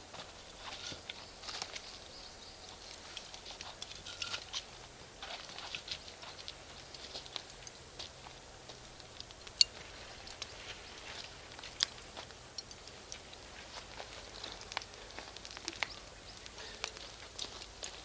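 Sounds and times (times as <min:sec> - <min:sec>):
bonfire crackling: 0:00.0 - 0:18.0
charcoal popping: 0:08.8 - 0:18.0.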